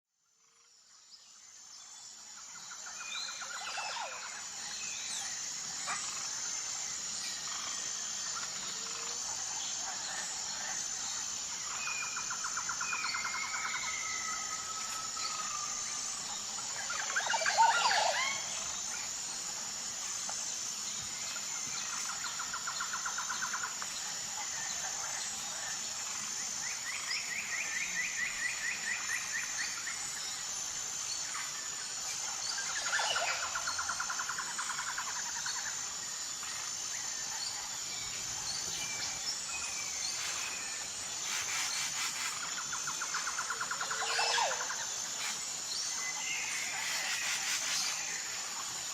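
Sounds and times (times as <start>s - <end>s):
high insect drone: 0.2s - 48.9s
birds calling with trills: 37.1s - 48.0s.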